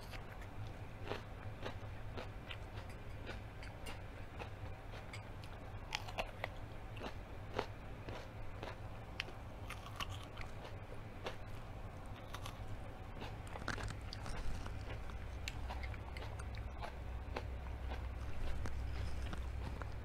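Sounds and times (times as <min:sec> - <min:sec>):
low steady hum: 0:00.0 - 0:20.0
person chewing food: 0:00.0 - 0:20.0.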